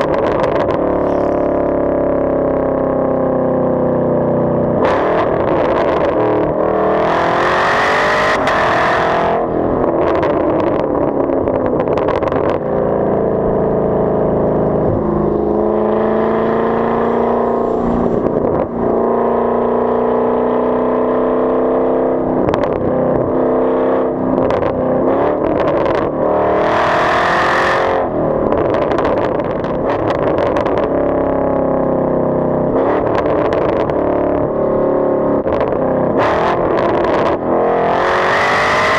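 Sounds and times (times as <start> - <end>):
car engine exhaust accelerating: 0.0 - 38.9.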